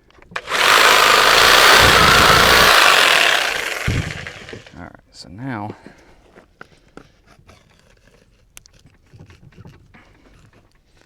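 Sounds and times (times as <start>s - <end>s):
knife and hands handling raw meat: 6.8s - 10.8s.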